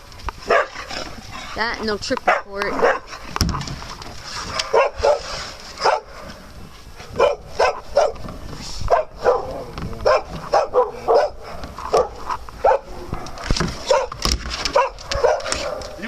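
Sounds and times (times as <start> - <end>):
dog barking: 0.4 - 1.1, 2.2 - 3.2, 4.4 - 6.3, 7.0 - 8.3, 8.9 - 16.0.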